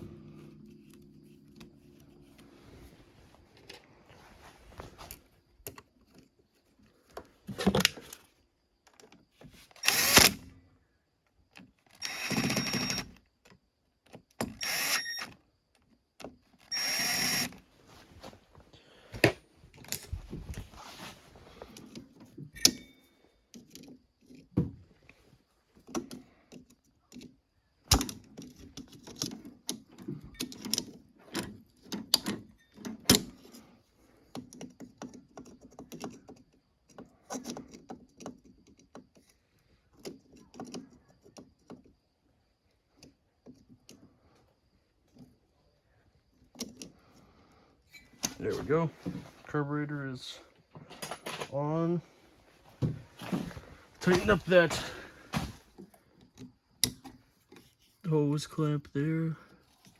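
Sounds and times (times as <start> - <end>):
power driver whirring: 9.7 - 10.4, 12.0 - 13.0, 14.6 - 15.2, 16.7 - 17.6
tools clicking and knocking: 21.7 - 24.6, 25.8 - 33.6, 34.3 - 41.9, 55.8 - 57.8.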